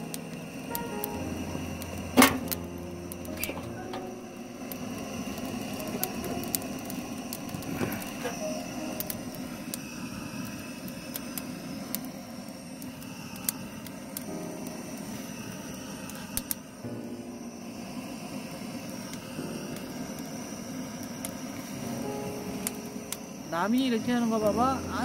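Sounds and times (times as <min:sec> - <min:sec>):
wood crackling: 0:00.0 - 0:10.2, 0:21.8 - 0:25.0
gas torch hissing: 0:00.0 - 0:25.0.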